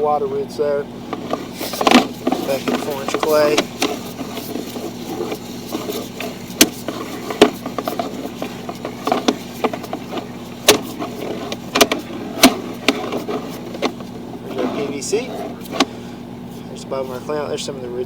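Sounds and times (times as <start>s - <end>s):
steady low hum: 0.0s - 18.0s
sharp knocks and clicks: 1.1s - 15.9s.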